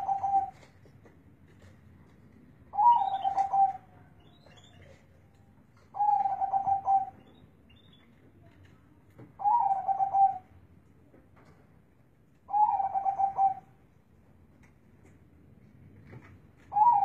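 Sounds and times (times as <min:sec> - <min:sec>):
dove cooing: 0:00.0 - 0:00.7, 0:02.7 - 0:03.9, 0:05.9 - 0:07.2, 0:09.4 - 0:10.5, 0:12.5 - 0:13.7, 0:16.7 - 0:17.0.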